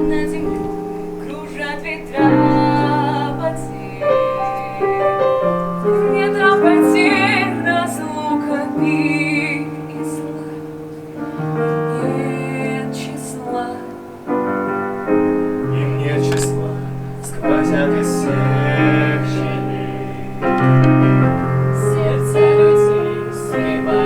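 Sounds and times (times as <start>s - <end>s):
person singing: 0.0s - 10.8s, 15.7s - 24.0s
piano playing slow chords: 0.0s - 24.0s.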